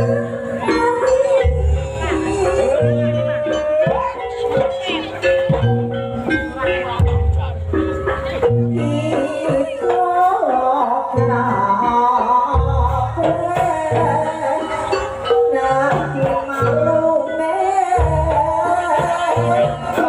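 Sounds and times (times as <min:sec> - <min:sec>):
person singing: 0:00.0 - 0:05.7, 0:08.1 - 0:20.0
melodic percussion: 0:00.0 - 0:20.0.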